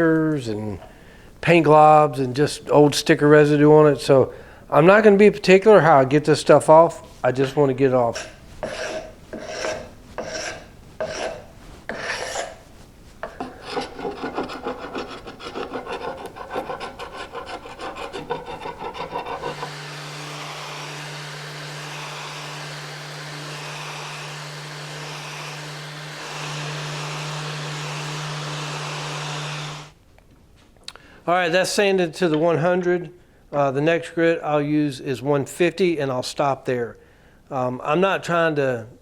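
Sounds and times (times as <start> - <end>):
sandpaper rubbing on wood: 13.4 - 29.9
power sander humming: 17.6 - 30.0.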